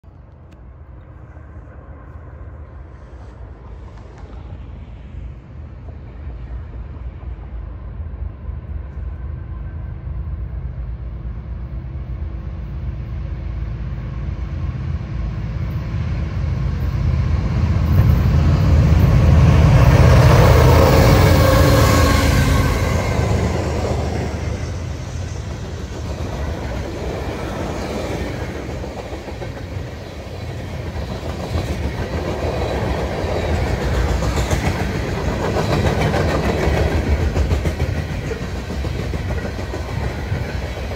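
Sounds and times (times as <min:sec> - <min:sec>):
diesel locomotive engines passing: 0:00.0 - 0:40.9
train wheels clacking over rails: 0:17.9 - 0:40.9.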